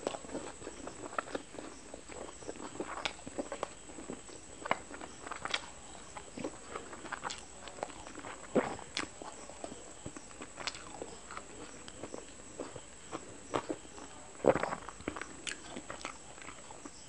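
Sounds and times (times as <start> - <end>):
chewing and mouth clicks: 0.0 - 17.0.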